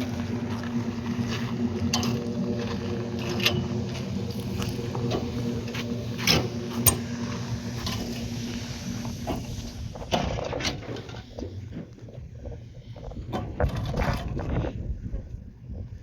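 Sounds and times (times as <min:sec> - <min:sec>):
machine humming: 0:00.0 - 0:11.6.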